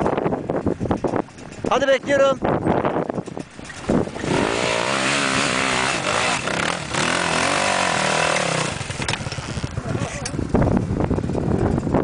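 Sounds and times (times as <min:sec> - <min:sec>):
motorcycle engine revving: 0:03.0 - 0:12.0.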